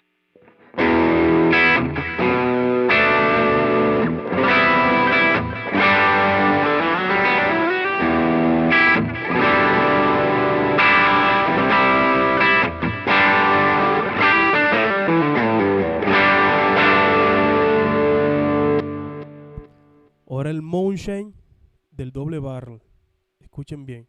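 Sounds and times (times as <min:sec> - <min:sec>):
overdriven electric guitar chords: 0:00.0 - 0:20.1.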